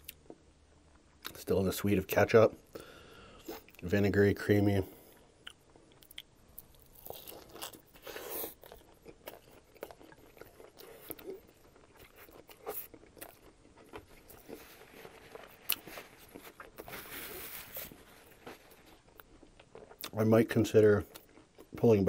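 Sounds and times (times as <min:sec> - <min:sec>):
crunchy fried chicken chewing: 0:05.0 - 0:21.8.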